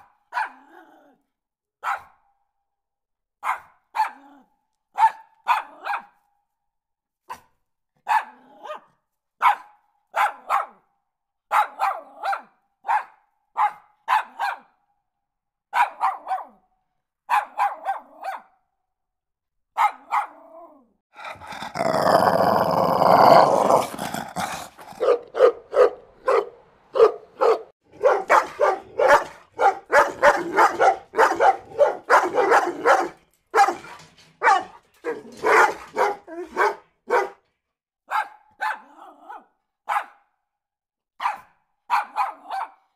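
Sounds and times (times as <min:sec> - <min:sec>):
dogs barking: 0:00.0 - 0:00.6, 0:01.8 - 0:02.1, 0:03.4 - 0:04.3, 0:05.0 - 0:06.2, 0:08.0 - 0:08.8, 0:09.4 - 0:10.8, 0:11.5 - 0:14.7, 0:15.8 - 0:16.6, 0:17.3 - 0:18.5, 0:19.8 - 0:20.4, 0:23.2 - 0:37.4, 0:38.1 - 0:40.2, 0:41.2 - 0:42.9
dog growling harshly: 0:21.1 - 0:25.4, 0:27.9 - 0:33.1.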